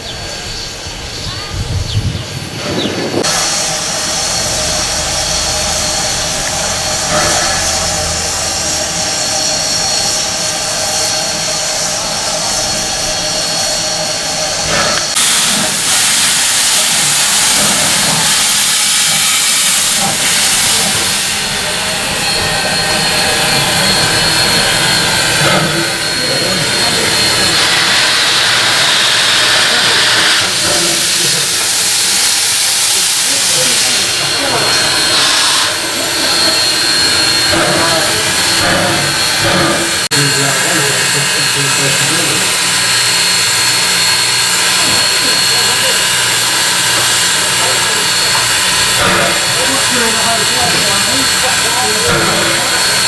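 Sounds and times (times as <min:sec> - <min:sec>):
steam locomotive hissing: 0:00.0 - 0:53.0.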